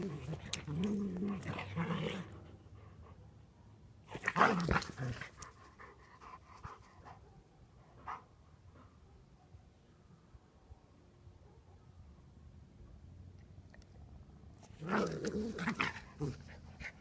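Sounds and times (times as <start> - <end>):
dogs growling: 14.7 - 17.0.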